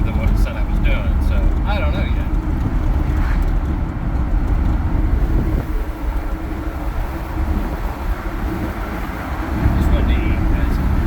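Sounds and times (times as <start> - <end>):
engine and road noise rumble: 0.0 - 11.0
wind buffeting microphone: 0.0 - 11.0.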